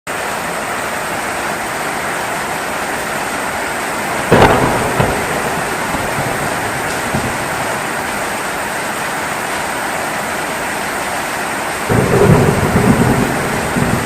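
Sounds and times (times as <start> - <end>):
heavy rainfall: 0.1 - 14.0
thunderclap and rumble: 4.1 - 8.7, 11.9 - 14.0.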